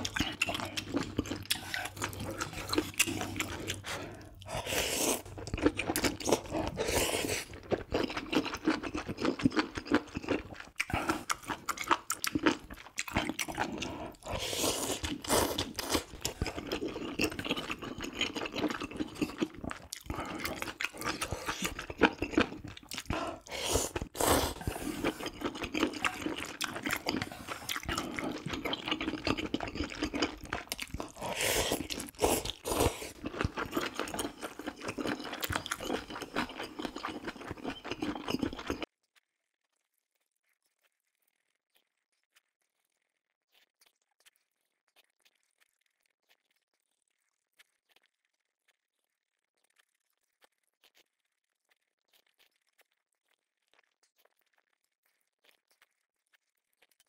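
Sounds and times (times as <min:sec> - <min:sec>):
person chewing crunchy food: 0:00.0 - 0:38.9
wet mouth sounds: 0:00.0 - 0:38.9.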